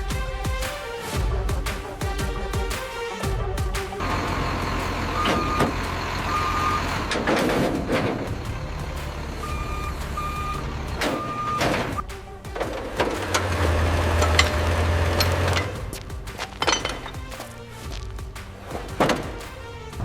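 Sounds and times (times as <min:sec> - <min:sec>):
reversing alarm beeping: 0:04.0 - 0:07.3, 0:09.2 - 0:12.0
low engine rumble: 0:04.0 - 0:16.3.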